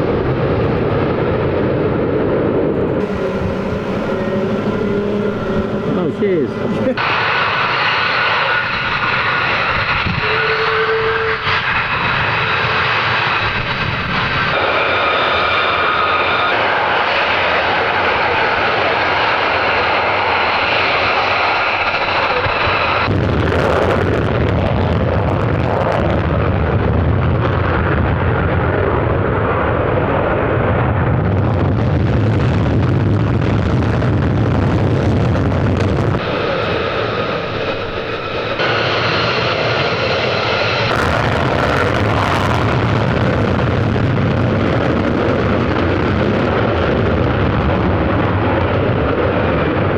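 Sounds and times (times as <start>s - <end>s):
deep rumbling jet noise: 0.0s - 49.9s
jet engines with turbine whine: 0.0s - 49.9s.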